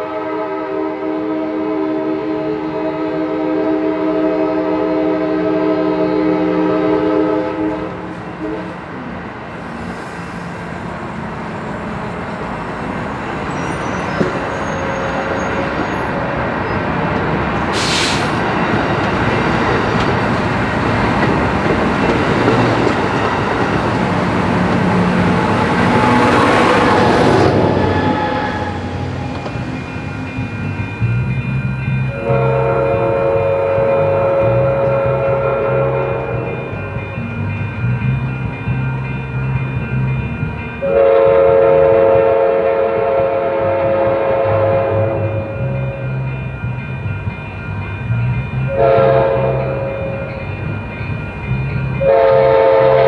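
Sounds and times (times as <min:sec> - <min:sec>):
train horn chord: 0:00.0 - 0:08.8, 0:24.8 - 0:29.9, 0:32.0 - 0:37.0, 0:40.8 - 0:46.2, 0:48.6 - 0:50.4, 0:52.0 - 0:53.0
train wheels rumbling on rails: 0:03.8 - 0:53.0.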